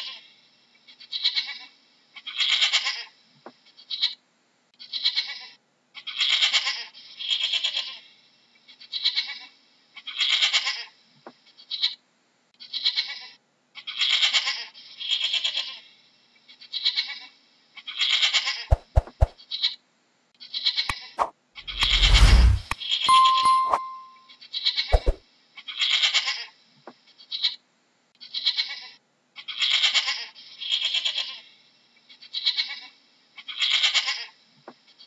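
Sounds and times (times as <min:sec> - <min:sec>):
noisy sound effect burst: 0:21.7 - 0:24.0.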